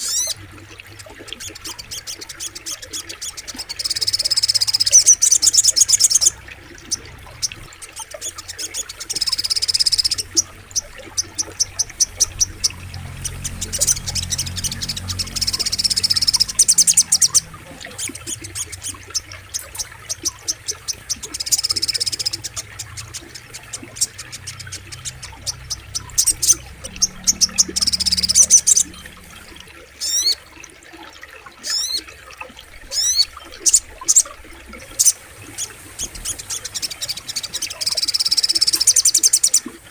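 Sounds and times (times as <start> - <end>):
flowing water: 0.0 - 39.9
bird chipping notes: 1.4 - 30.4.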